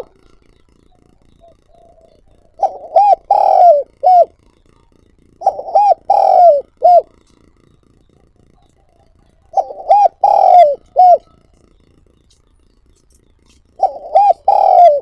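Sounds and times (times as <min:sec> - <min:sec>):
dove cooing: 0:00.0 - 0:04.5, 0:05.4 - 0:07.4, 0:08.1 - 0:11.6, 0:13.7 - 0:15.0.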